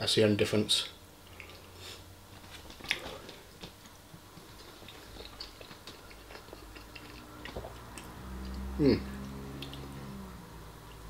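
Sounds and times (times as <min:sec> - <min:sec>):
chewing food: 0:01.2 - 0:01.8, 0:02.4 - 0:11.0
wet mouth clicks: 0:04.6 - 0:10.0.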